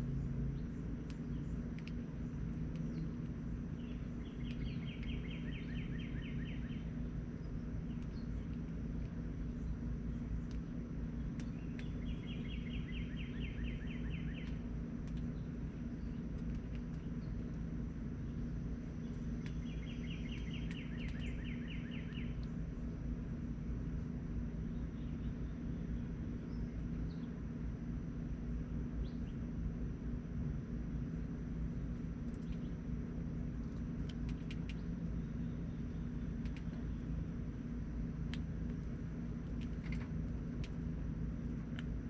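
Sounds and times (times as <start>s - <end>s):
low background rumble: 0.0s - 42.0s
songbird rapid trill: 0.2s - 8.7s, 9.4s - 22.7s.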